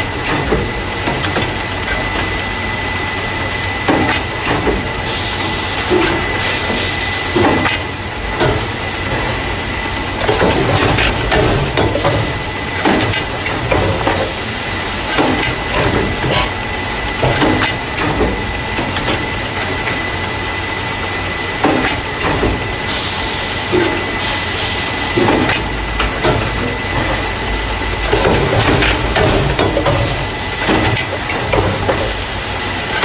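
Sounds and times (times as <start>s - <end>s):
machine running with high whine: 0.0s - 33.0s
mechanism clacks and knocks: 10.2s - 14.4s, 15.0s - 16.6s, 17.2s - 20.1s, 21.6s - 22.7s, 25.1s - 32.2s.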